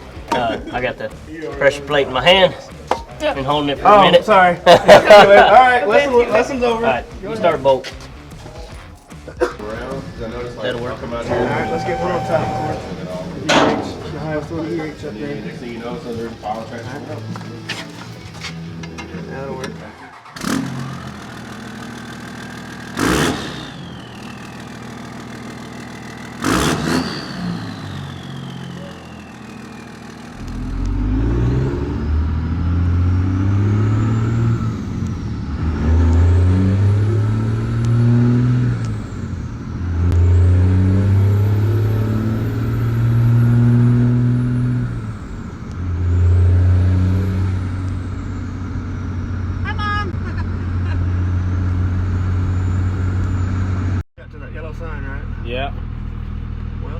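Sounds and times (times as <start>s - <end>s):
diesel engine revving: 0.0s - 56.9s
turbo whistle: 11.1s - 14.7s, 23.0s - 31.7s
sharp loud noises: 11.2s - 14.4s.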